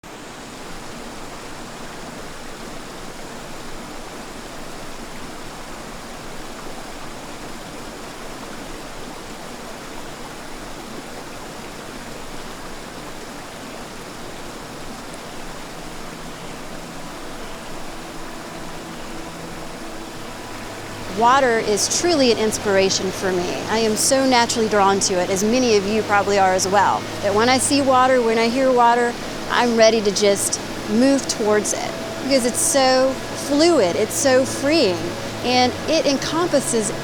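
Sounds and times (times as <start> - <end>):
creek water rushing: 0.0 - 37.0.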